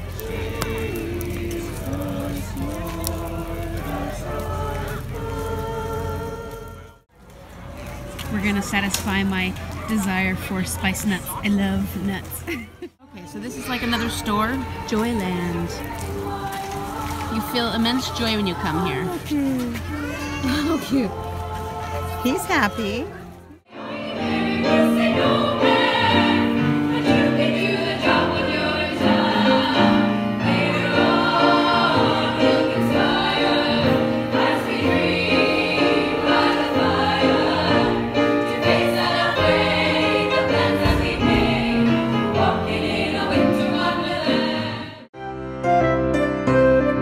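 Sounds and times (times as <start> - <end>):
women's choir singing: 0.0 - 7.1, 13.0 - 19.3, 20.6 - 45.1.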